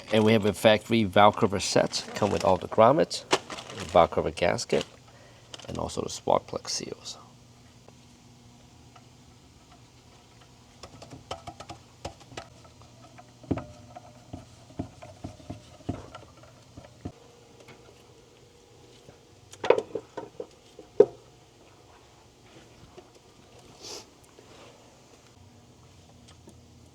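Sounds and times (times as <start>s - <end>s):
small engine parts clinking: 0.0s - 5.9s.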